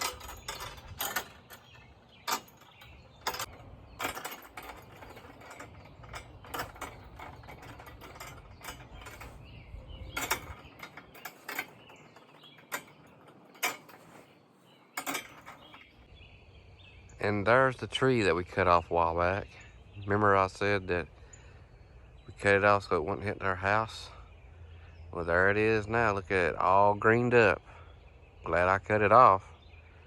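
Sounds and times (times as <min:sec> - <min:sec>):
swing hangers clicking and creaking: 0:00.0 - 0:16.2.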